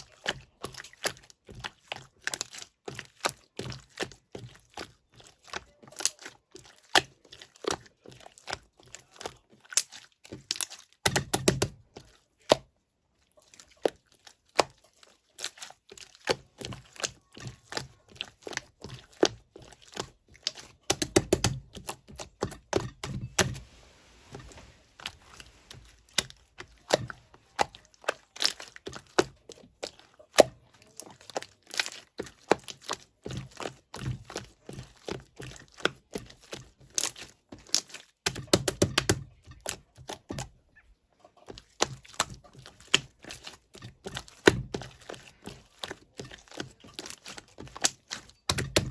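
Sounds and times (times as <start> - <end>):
slime squished by hand: 13.3 - 40.6, 41.5 - 48.9.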